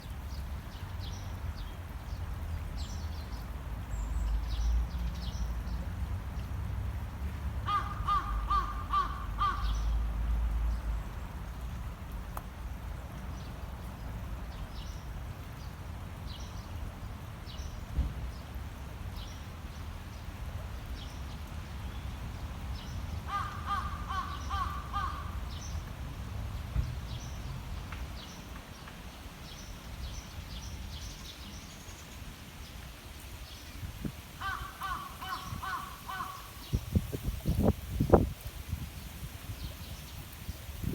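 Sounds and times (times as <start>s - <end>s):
river water burbling over stones: 0.0s - 40.9s
bird harsh calls: 7.7s - 9.9s, 23.3s - 25.6s, 34.4s - 36.7s.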